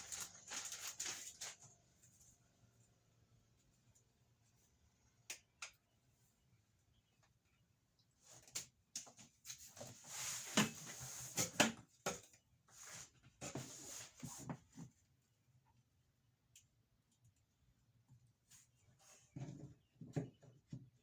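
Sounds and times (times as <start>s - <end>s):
objects scraping and rustling: 9.1s - 11.9s, 12.7s - 15.0s.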